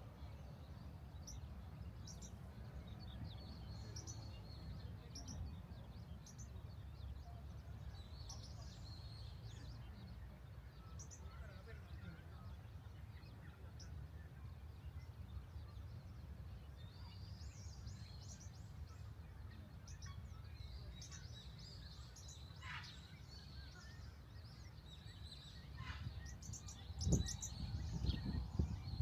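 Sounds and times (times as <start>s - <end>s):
birds chirping: 20.8s - 29.0s.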